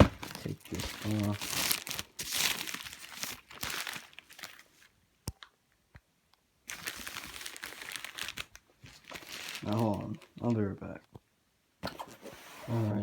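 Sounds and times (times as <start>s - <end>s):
packaging wrap crinkling: 0.0s - 4.9s, 6.7s - 10.5s.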